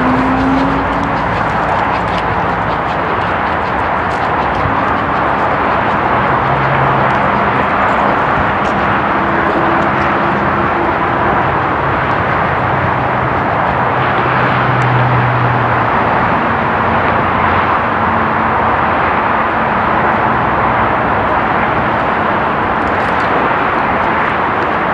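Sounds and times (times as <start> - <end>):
low humming tones: 0.0 - 14.0
train rushing past: 0.0 - 24.9.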